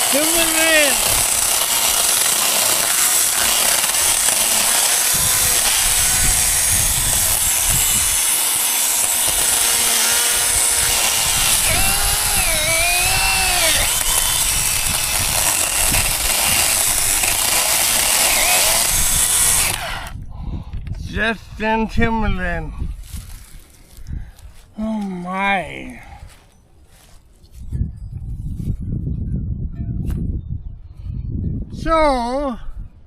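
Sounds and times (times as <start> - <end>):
chainsaw cutting brush: 0.0 - 20.2.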